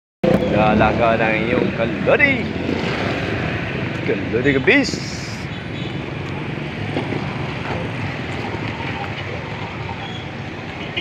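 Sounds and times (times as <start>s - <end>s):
road traffic on busy street: 0.2s - 11.0s.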